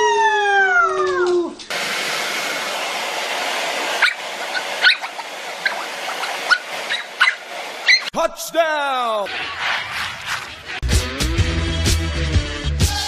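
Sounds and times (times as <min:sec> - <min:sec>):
dog howling: 0:00.0 - 0:01.6
high dog whimpers: 0:04.0 - 0:08.1.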